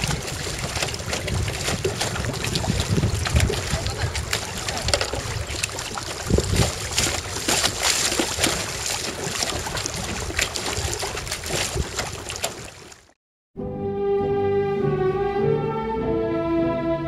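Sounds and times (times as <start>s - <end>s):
wind buffeting microphone: 0.0s - 12.3s
paddle splashing water: 0.0s - 13.2s
music: 13.6s - 17.0s.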